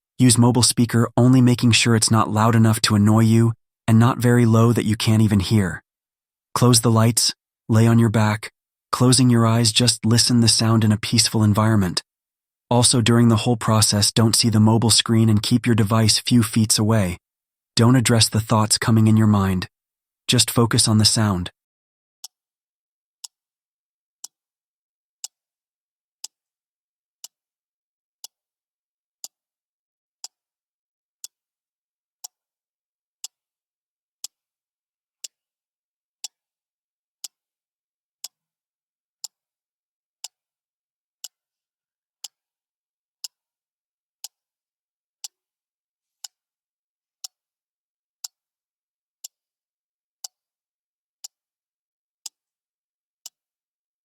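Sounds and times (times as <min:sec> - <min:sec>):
clock ticking: 0:00.2 - 0:05.8, 0:06.6 - 0:12.0, 0:12.7 - 0:17.2, 0:17.8 - 0:19.7, 0:20.3 - 0:21.5.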